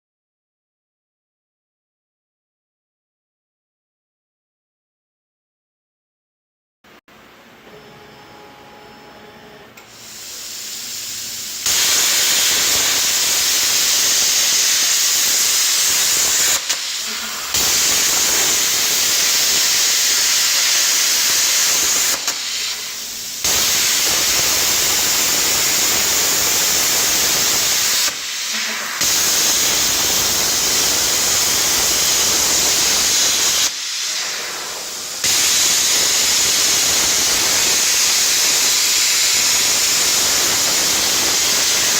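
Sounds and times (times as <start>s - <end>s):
compressed air hissing: 9.8s - 41.9s.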